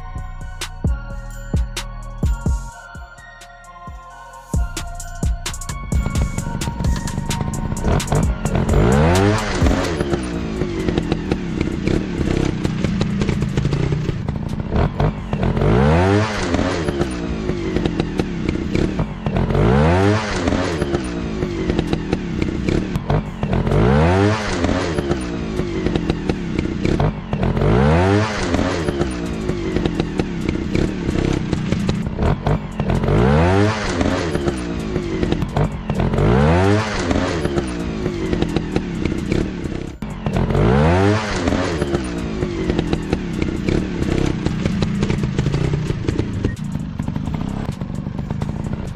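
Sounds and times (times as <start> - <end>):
low engine drone: 4.6 - 48.9
dirt bike engines revving: 6.8 - 48.9.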